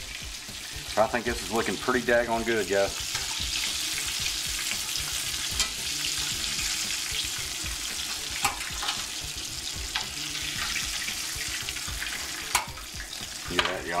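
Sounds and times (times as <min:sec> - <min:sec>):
chicken wings frying in oil: 0:00.0 - 0:14.0
metal tongs clicking: 0:05.6 - 0:05.8, 0:08.4 - 0:09.1, 0:12.5 - 0:12.8.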